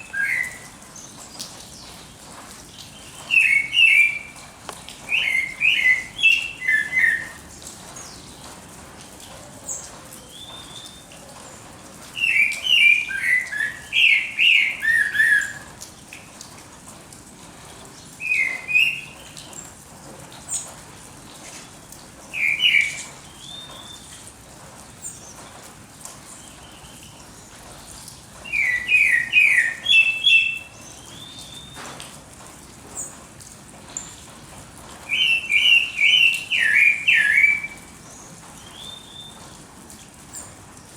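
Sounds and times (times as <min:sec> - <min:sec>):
songbirds chirping: 0:00.0 - 0:15.6, 0:20.4 - 0:24.2, 0:26.2 - 0:32.1, 0:35.0 - 0:40.6.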